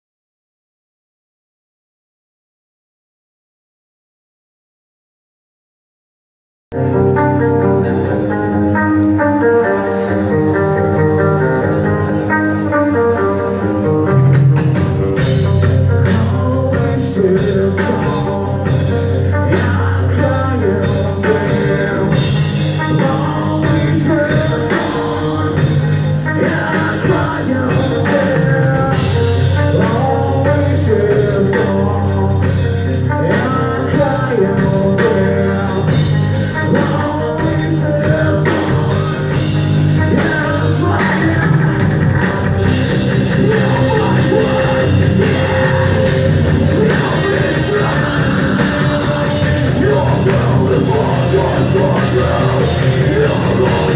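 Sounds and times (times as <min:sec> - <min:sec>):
guitars: 0:06.7 - 0:53.9
person singing: 0:06.8 - 0:53.9
drum kit: 0:14.1 - 0:53.9.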